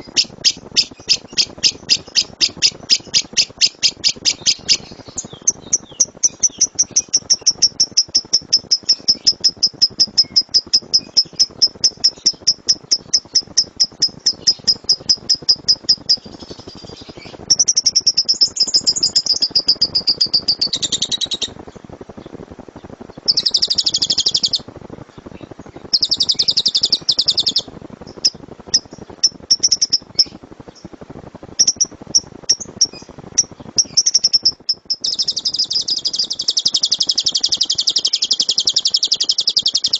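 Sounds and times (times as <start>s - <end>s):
bird sharp high chirps: 0.0s - 21.6s, 23.2s - 24.6s, 25.7s - 30.9s, 31.6s - 39.9s
bird chattering trills: 0.0s - 31.0s, 31.6s - 39.9s.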